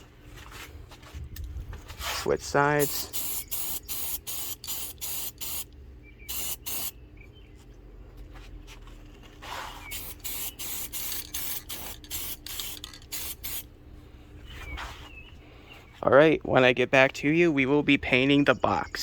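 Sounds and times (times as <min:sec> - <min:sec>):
spray paint can hissing: 0:02.8 - 0:05.7, 0:06.3 - 0:06.9, 0:09.5 - 0:13.7.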